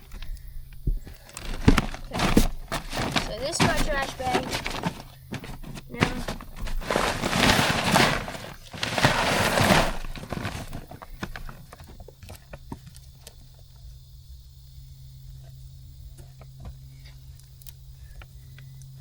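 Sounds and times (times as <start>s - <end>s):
kernels ticking and settling: 0.0s - 13.0s
corn pouring from a sack: 1.2s - 12.0s.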